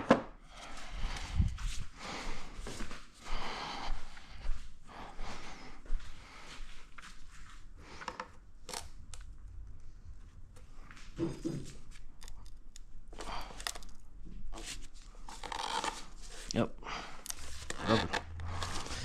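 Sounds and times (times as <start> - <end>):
plastic and rubber rustling and scraping: 11.5 - 16.6, 17.2 - 19.0.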